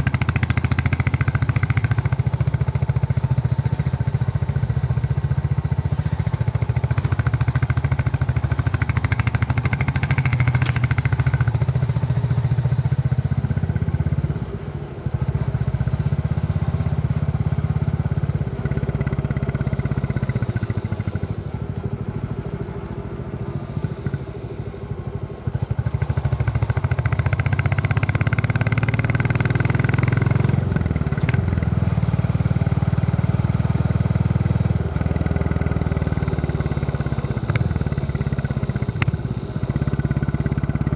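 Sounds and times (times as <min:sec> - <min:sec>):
motorcycle engine thumping: 0:00.0 - 0:12.2, 0:33.6 - 0:40.9.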